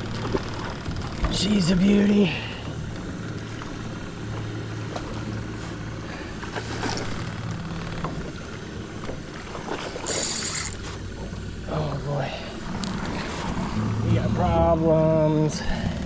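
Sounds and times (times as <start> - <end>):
boat motor running: 0.0 - 16.0
water noise: 0.0 - 16.0
high-pitched buzz: 10.0 - 10.8.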